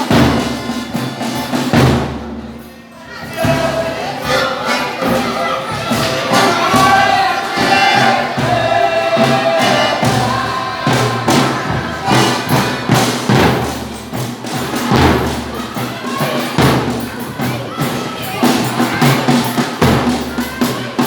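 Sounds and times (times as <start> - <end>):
drum beating: 0.0 - 21.0
folk group singing: 3.0 - 14.1.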